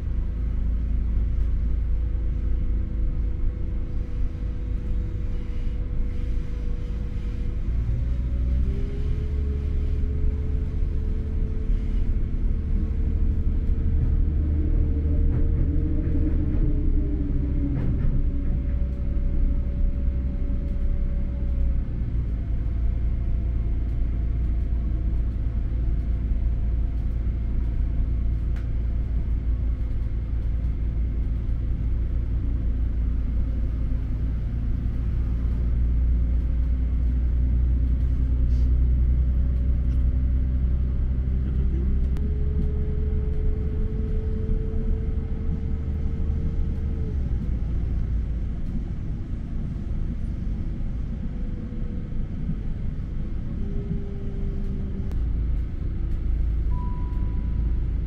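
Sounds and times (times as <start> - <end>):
humming engine tone: 0.0 - 58.0
train rumble: 0.0 - 58.0.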